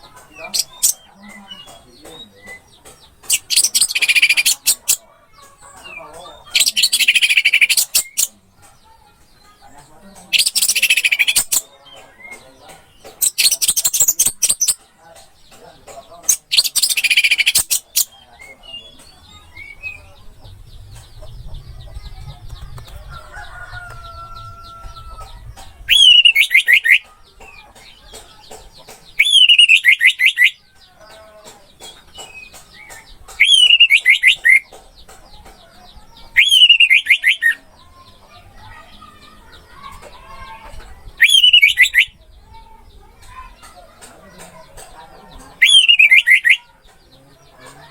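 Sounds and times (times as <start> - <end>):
faint high bird chirping: 31.9 - 34.7, 35.4 - 43.6, 45.4 - 47.8.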